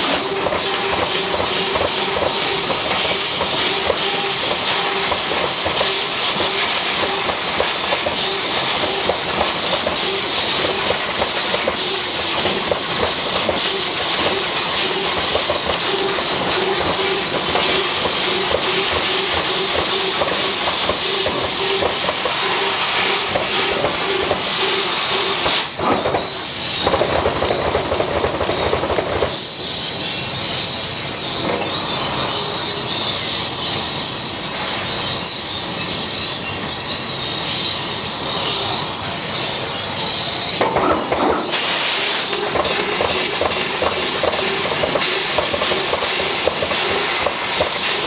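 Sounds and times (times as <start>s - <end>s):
laser cutter gas jet hissing: 0.0s - 48.0s.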